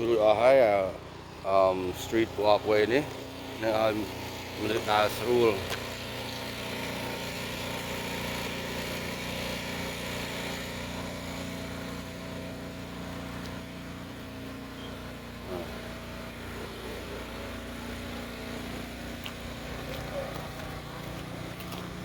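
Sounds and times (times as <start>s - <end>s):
engine humming steadily: 0.0s - 22.0s.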